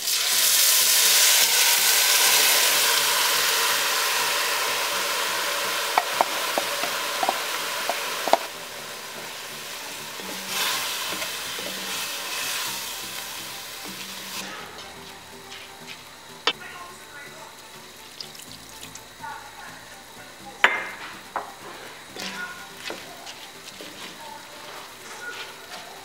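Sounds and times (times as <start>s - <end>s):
food sizzling in hot oil: 0.0s - 26.0s
wooden spoon stirring rice: 10.1s - 13.2s, 22.2s - 26.0s.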